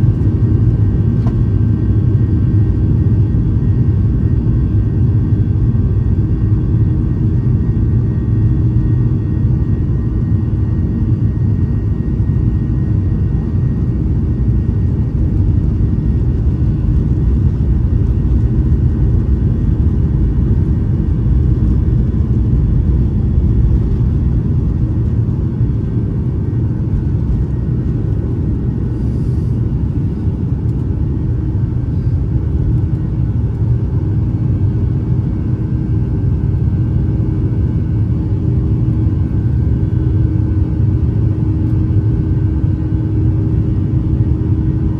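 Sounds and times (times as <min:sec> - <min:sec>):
airplane cabin engine rumble: 0:00.0 - 0:44.9.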